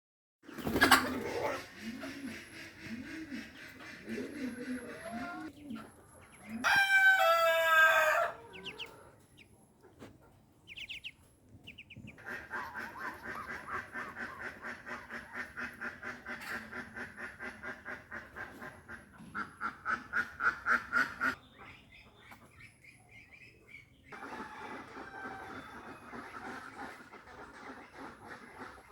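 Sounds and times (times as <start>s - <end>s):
ducks quacking rapidly: 0.6s - 5.5s, 10.7s - 11.1s, 11.7s - 21.4s, 26.0s - 28.9s
rooster crowing: 6.5s - 8.8s.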